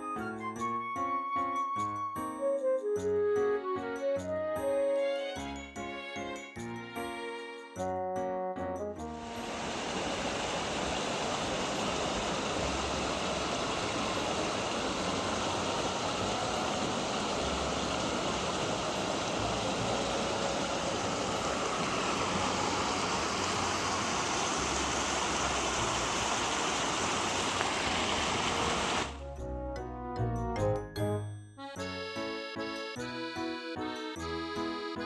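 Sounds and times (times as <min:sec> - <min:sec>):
music: 0:00.0 - 0:09.4, 0:29.1 - 0:35.0
mountain stream flowing: 0:09.2 - 0:29.2.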